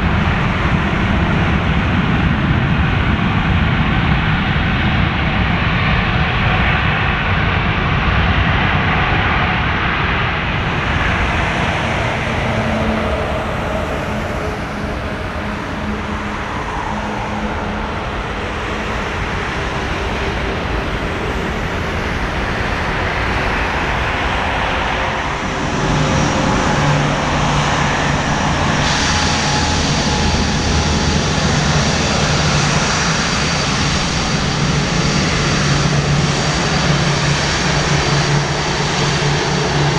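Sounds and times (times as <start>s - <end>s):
jet engine rush: 0.0s - 39.9s
low steady drone: 0.0s - 39.9s.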